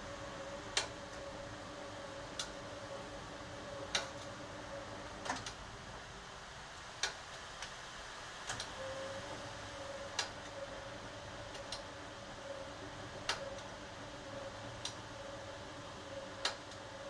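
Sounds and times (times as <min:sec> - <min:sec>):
washing machine hum: 0:00.0 - 0:17.0.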